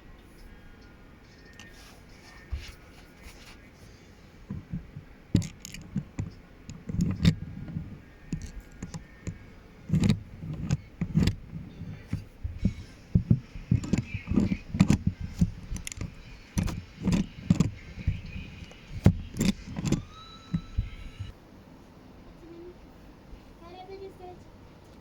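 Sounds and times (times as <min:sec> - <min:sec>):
dull thumps: 0:04.4 - 0:21.3
plastic bricks clicking: 0:04.5 - 0:21.3.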